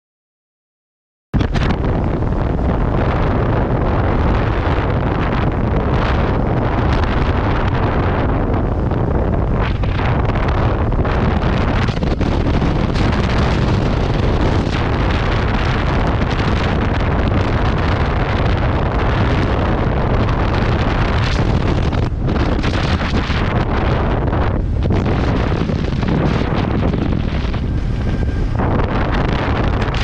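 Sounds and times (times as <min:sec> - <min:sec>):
wind buffeting microphone: 0:01.4 - 0:30.0.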